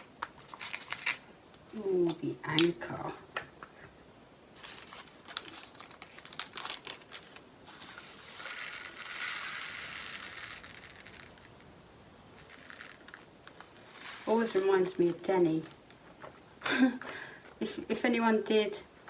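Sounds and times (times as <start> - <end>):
plastic bags crinkling: 4.6 - 7.5, 12.2 - 16.2
tiny beads poured into plastic pot: 5.5 - 15.8.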